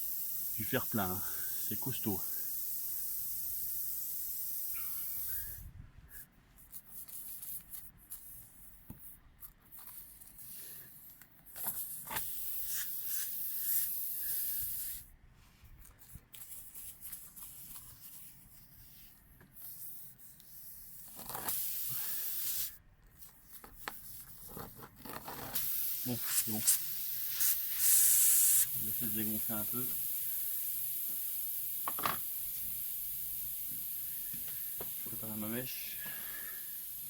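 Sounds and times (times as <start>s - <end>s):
air hissing from tyre: 0.0s - 6.3s, 10.3s - 15.1s, 18.6s - 22.8s, 25.4s - 37.0s.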